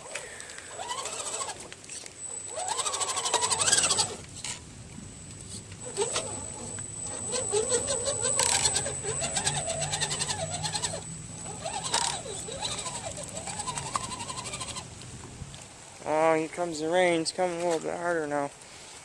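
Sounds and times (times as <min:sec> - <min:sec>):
electric motor and drivetrain whining: 0:00.0 - 0:15.9
rapid clicking: 0:00.5 - 0:15.1.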